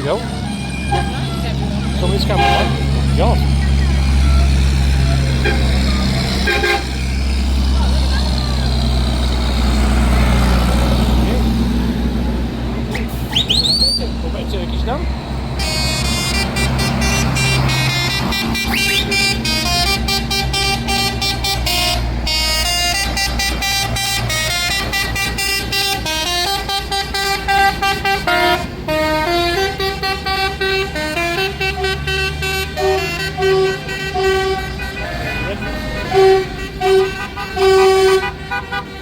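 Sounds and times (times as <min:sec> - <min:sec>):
musical vehicle horn tune: 0:00.0 - 0:07.5, 0:15.6 - 0:39.0
engines rumbling: 0:00.0 - 0:39.0.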